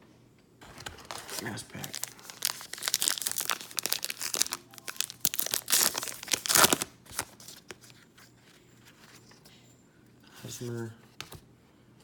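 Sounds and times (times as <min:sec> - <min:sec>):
wrapper crinkling and tearing: 0:00.7 - 0:07.7.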